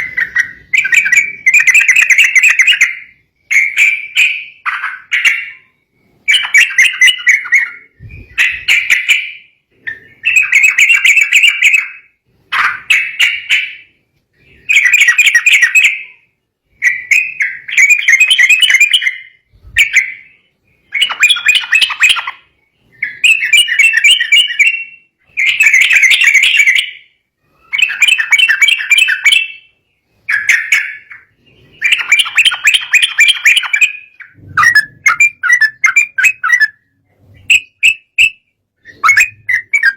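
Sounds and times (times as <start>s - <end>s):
bird chattering: 0.0s - 39.9s.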